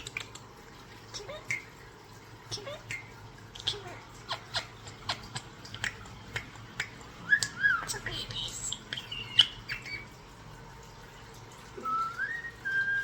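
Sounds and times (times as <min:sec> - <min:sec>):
starling singing: 0:07.2 - 0:10.2
whistled glides: 0:11.8 - 0:13.0.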